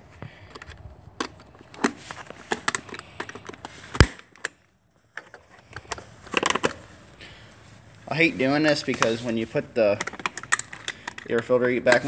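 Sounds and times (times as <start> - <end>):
hand tools clicking and knocking: 8.6 - 12.0.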